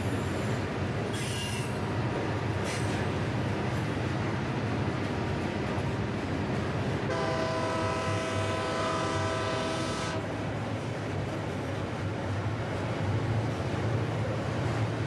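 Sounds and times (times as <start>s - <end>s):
train rumble: 0.0s - 15.0s
locomotive air horn blast: 7.1s - 10.2s.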